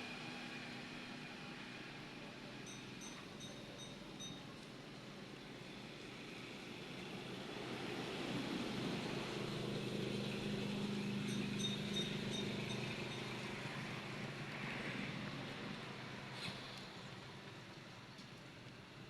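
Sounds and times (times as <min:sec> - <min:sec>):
vehicle engine hum passing: 0:05.3 - 0:18.7.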